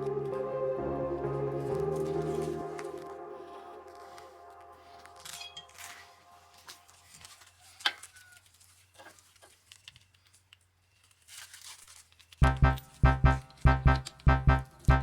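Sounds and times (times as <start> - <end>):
music with heavy pulsing beat: 12.4 - 15.0.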